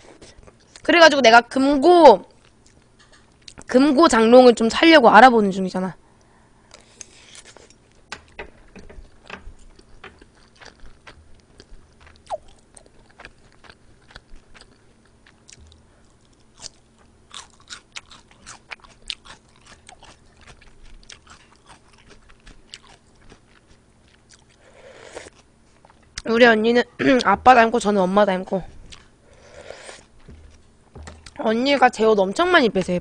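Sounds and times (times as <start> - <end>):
person chewing food: 9.1 - 26.3, 28.8 - 31.4.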